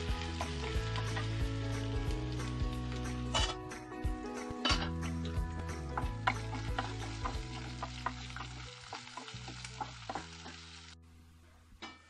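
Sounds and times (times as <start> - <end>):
food sizzling in oil: 0.0 - 3.8, 4.4 - 11.0
spatula scraping pan: 3.3 - 3.6.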